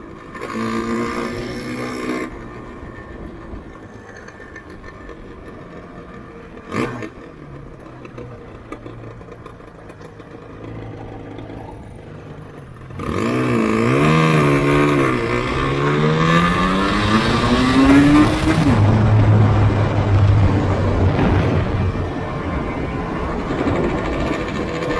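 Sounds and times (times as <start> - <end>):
two-stroke engine running: 0.0 - 24.9.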